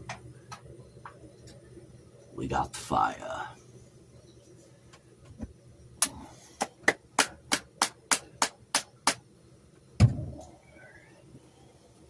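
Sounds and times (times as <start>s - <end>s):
sharp hard clicks: 6.9s - 9.2s.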